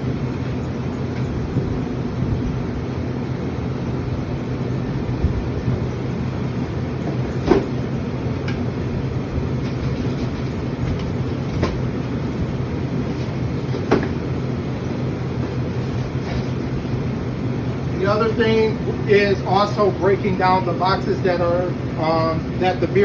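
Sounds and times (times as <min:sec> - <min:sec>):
refrigeration machinery humming: 0:00.0 - 0:23.0
drink containers knocking on shelves: 0:13.7 - 0:14.2.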